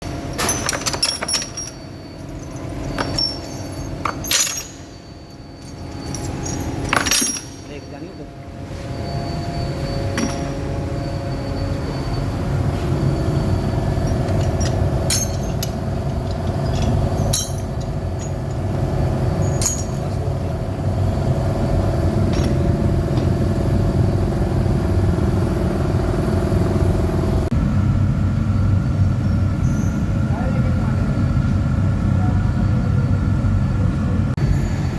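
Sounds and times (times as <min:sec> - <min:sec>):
mechanical hum and rumble: 0:00.0 - 0:34.9
metallic clinks: 0:00.2 - 0:08.3, 0:08.9 - 0:20.8.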